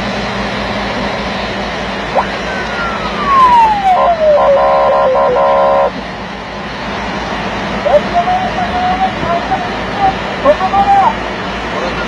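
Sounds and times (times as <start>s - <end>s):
vehicle engine running: 0.0s - 12.0s
siren-like tone gliding down: 2.1s - 6.0s
short chopped horn blasts: 4.0s - 6.0s.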